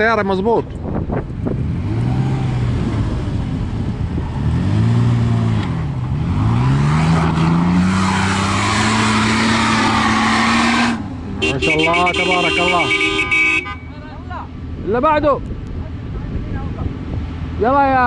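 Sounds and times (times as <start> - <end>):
car engine revving hard: 1.6 - 3.5, 4.3 - 11.1
tyres churning sand: 6.4 - 11.0.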